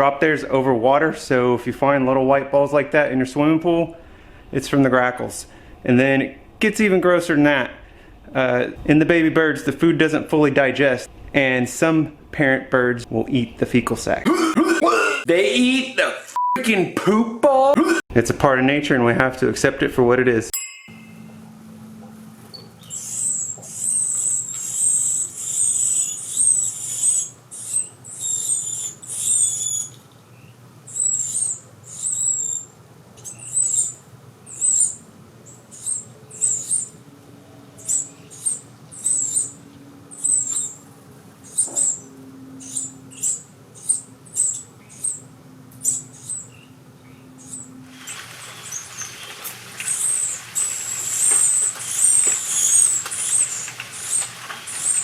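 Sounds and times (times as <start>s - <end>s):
nestlings squeaky begging calls: 22.5s - 37.0s, 37.7s - 40.8s, 41.4s - 55.0s.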